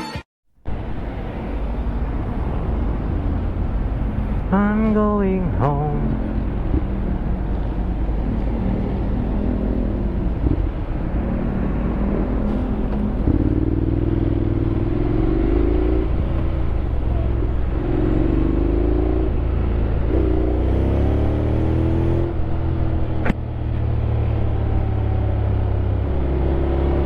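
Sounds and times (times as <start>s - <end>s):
motorcycle engine revving: 5.6s - 22.9s.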